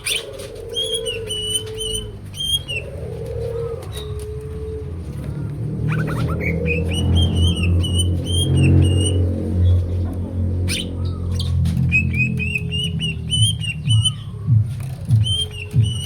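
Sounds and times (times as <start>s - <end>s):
bird singing whistled notes: 0.8s - 2.9s, 5.9s - 9.2s, 10.7s - 14.5s, 15.1s - 16.0s.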